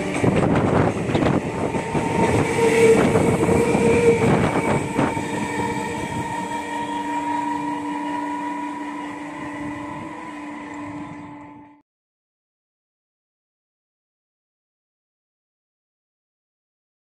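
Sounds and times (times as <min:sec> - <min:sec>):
wheels clattering over rail joints: 0:00.0 - 0:05.7
train electric hum: 0:00.0 - 0:11.8.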